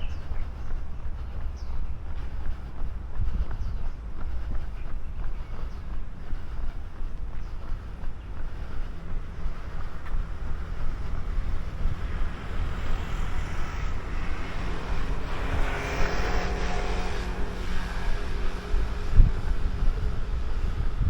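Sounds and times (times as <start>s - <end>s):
wind rumbling on microphone: 0.0s - 21.0s
passing vehicle engine: 7.6s - 21.0s.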